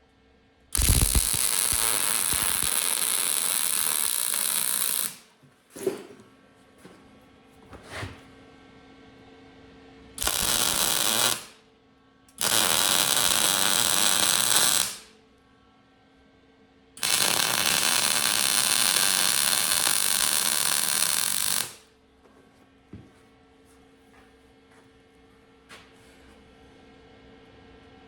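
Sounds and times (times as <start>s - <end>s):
arc welder sizzling: 0.8s - 5.3s, 10.2s - 11.6s, 12.4s - 15.1s, 17.0s - 21.9s.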